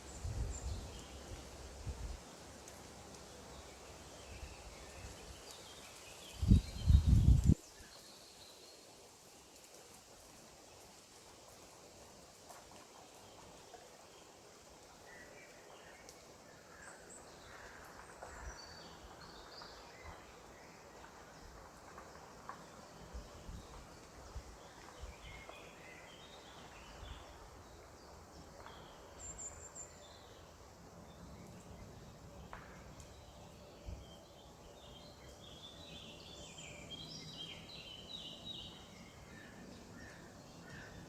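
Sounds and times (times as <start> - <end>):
small birds chirping: 15.0 - 41.0.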